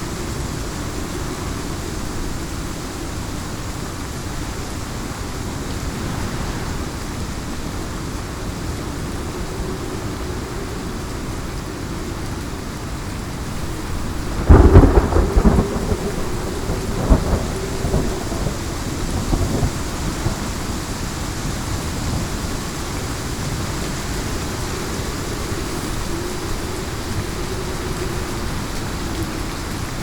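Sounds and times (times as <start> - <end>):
heavy rain: 0.0 - 30.0
thunderclap and rumbling: 4.4 - 9.4, 13.5 - 22.3.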